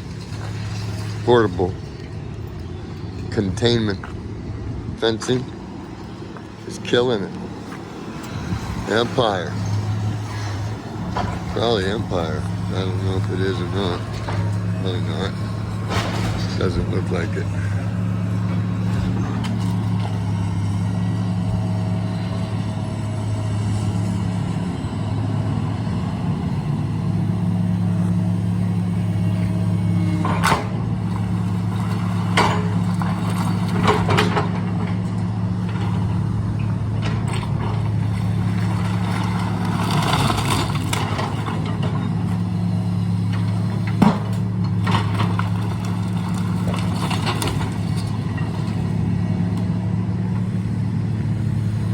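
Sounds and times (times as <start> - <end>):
heavy engine humming: 0.0 - 51.9
demolition bangs and crashes: 8.4 - 21.7, 30.2 - 50.1.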